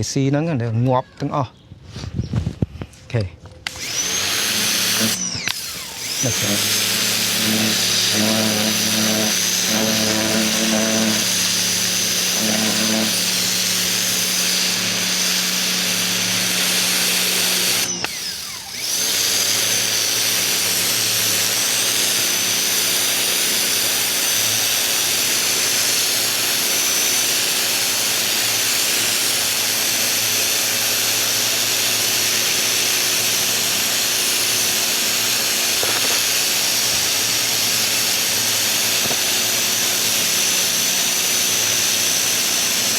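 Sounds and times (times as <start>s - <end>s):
pressure washer pump humming: 3.6s - 42.9s
high-pressure spray hissing: 4.0s - 29.6s.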